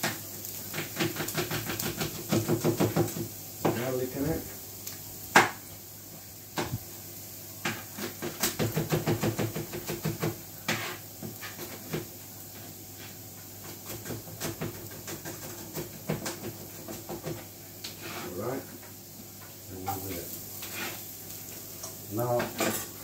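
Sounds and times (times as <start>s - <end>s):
knife chopping on cutting board: 0.7s - 3.8s, 7.6s - 11.0s.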